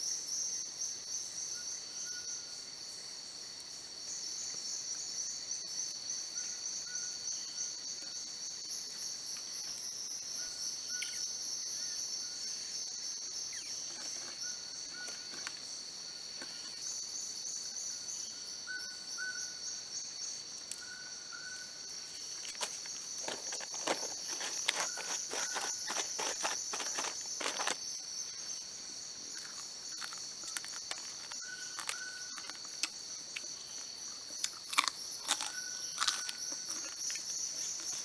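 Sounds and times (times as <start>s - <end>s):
insect high trill: 18.2s - 38.0s.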